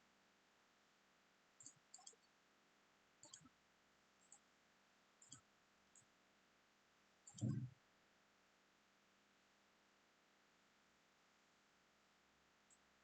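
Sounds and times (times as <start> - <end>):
computer mouse clicks: 1.6 - 2.3, 3.2 - 3.5, 5.2 - 5.4, 7.2 - 7.7.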